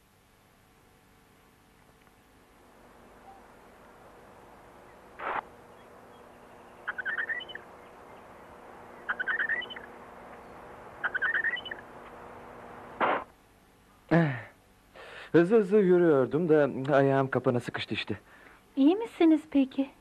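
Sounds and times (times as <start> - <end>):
faint steady hum: 0.0 - 20.0
bird chirping: 3.0 - 12.0
burst of rushing noise: 13.0 - 13.3.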